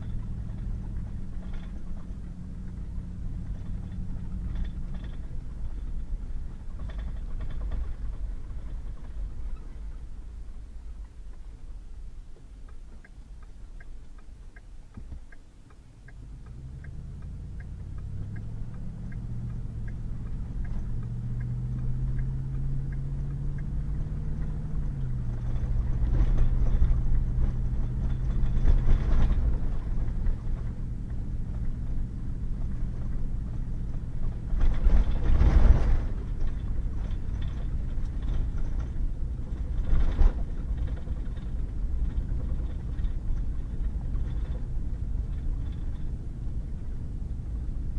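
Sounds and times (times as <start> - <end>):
truck engine accelerating: 0.0 - 11.6, 15.9 - 47.9
light regular ticking: 0.0 - 34.8
tyre and road noise: 0.0 - 47.9.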